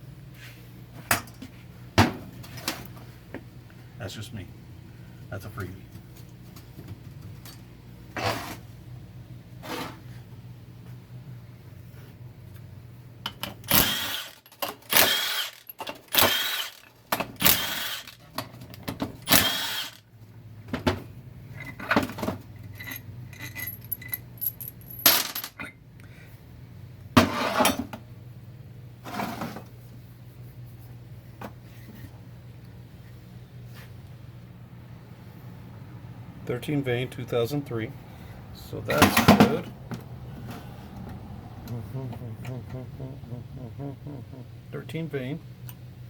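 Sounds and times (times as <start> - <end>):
steady low hum: 0.0 - 46.0
metal parts clanking: 21.6 - 25.7.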